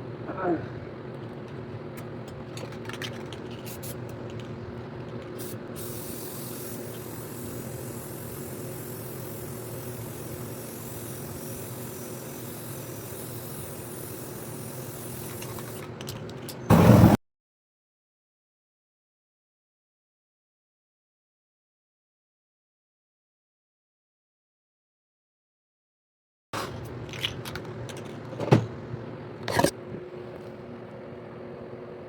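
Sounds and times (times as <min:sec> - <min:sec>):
aerosol spray can hissing: 0:05.4 - 0:15.9.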